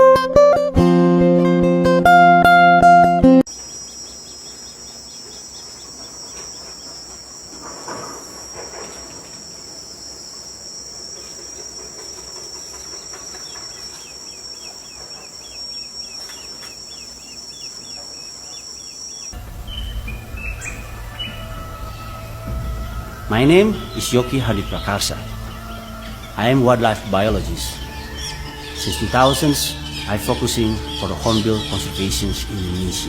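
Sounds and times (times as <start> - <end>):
insects droning: 3.5 - 33.0
low rumble: 19.4 - 33.0.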